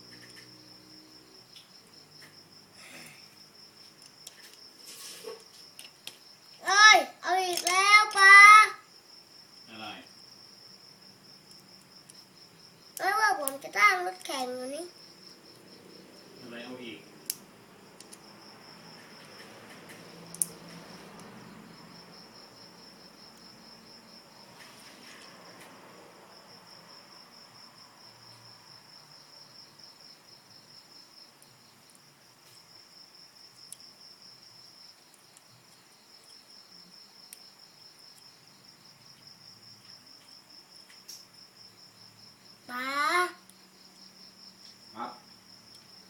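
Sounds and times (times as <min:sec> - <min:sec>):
cricket chirping trill: 0:00.0 - 0:46.0
sharp clicks: 0:17.2 - 0:17.4, 0:19.3 - 0:20.5.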